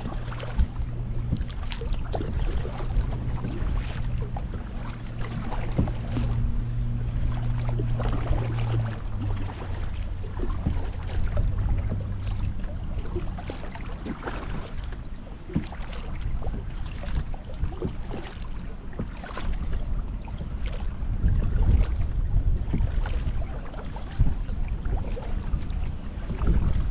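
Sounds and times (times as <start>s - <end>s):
water dripping off paddle: 0.0s - 19.6s
kayak paddle splashing: 0.0s - 26.9s
low steady hum: 0.0s - 26.9s.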